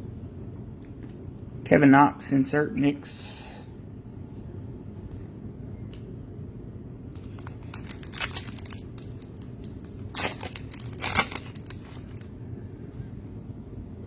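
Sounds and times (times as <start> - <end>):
low room hum: 0.0 - 14.0
cards crinkling and rustling: 7.1 - 12.3.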